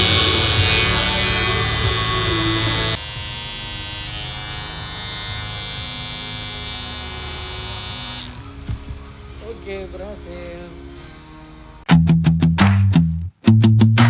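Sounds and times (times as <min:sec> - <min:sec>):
electric hair clipper buzzing: 0:00.0 - 0:09.3.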